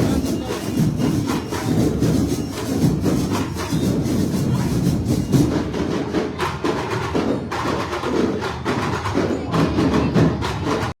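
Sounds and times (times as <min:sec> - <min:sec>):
fast percussion music: 0:00.0 - 0:11.0.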